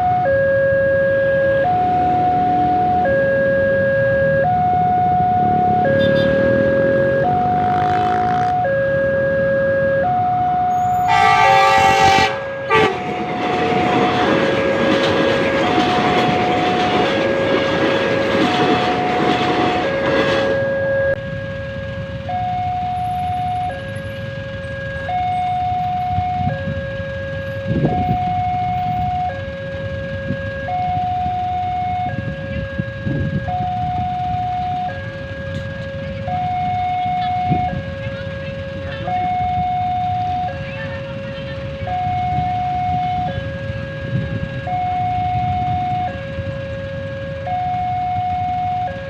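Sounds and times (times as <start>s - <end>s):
two-tone crossing alarm: 0.0s - 49.0s
train running past: 1.2s - 9.1s, 10.0s - 49.0s
train horn: 5.8s - 6.7s, 10.7s - 14.6s, 15.5s - 17.8s.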